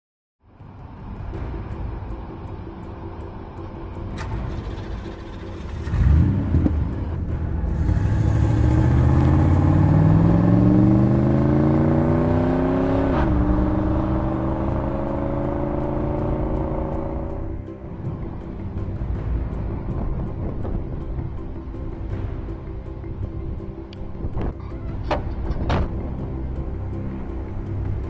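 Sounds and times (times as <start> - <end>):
faint ticking music beat: 0.4 - 28.0
car engine starting: 2.7 - 22.1
car engine accelerating: 3.6 - 18.8.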